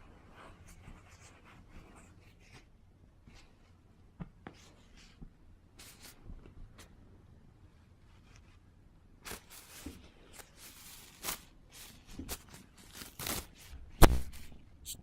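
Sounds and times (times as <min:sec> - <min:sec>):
tissue paper rustling: 0:09.2 - 0:14.6
sharp thump: 0:14.0 - 0:14.6.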